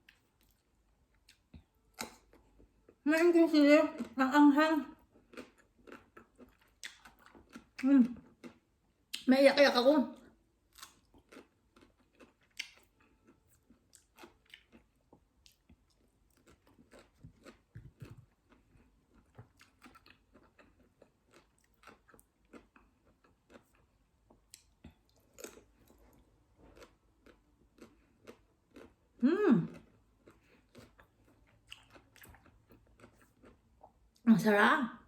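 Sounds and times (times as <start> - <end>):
crunchy chewing: 5.0 - 8.6, 10.7 - 29.0, 29.6 - 34.0
person humming: 29.2 - 29.7.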